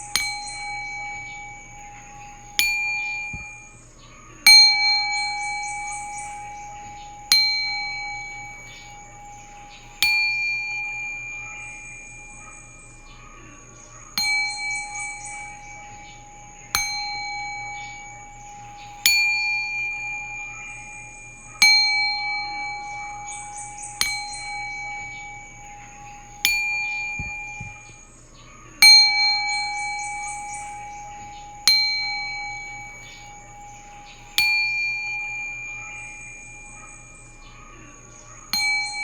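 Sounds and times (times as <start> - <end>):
singing bowl ringing: 0.0 - 39.0.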